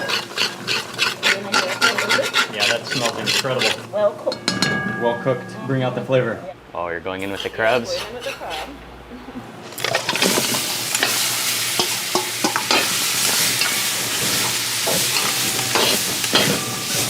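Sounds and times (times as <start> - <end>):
crab sizzling in hot oil: 0.0 - 3.9, 9.7 - 17.0
utensil knocking and scraping pot: 0.0 - 5.4, 7.2 - 8.8, 9.8 - 17.0.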